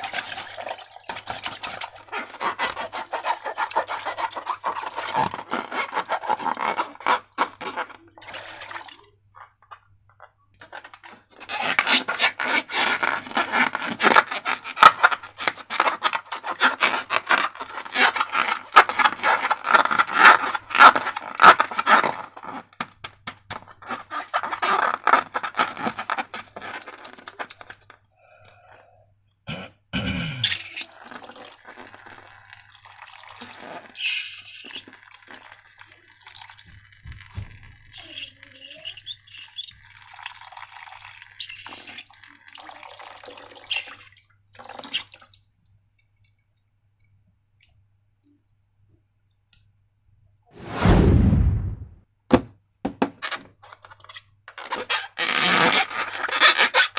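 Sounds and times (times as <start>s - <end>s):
slime squelching: 0.0s - 9.9s, 30.4s - 40.1s.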